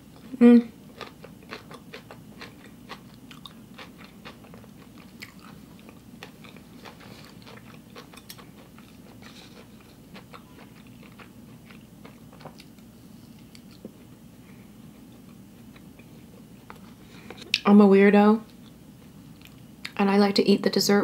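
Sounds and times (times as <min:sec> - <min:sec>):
person chewing food: 0:00.1 - 0:17.6, 0:18.5 - 0:20.0.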